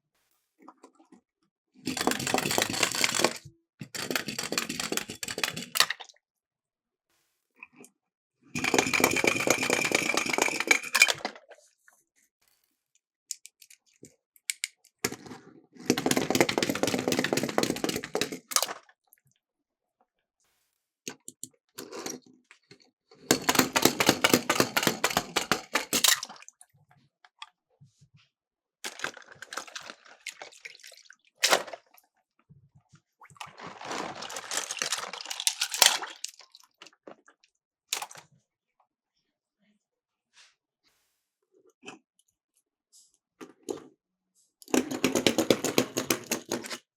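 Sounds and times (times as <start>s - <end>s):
toy cars rattling down plastic slope: 1.9s - 6.0s, 8.6s - 11.4s, 15.0s - 18.8s, 23.2s - 26.4s, 33.5s - 36.3s, 44.6s - 46.9s.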